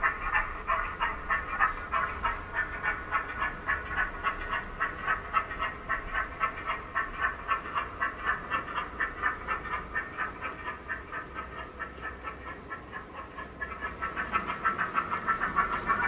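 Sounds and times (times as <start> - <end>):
model locomotive chuffs from speaker: 0.0 - 16.0.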